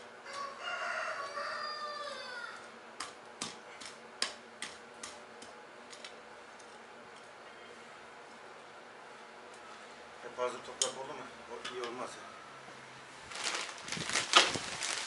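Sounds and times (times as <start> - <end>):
rooster crowing: 0.2 - 2.7.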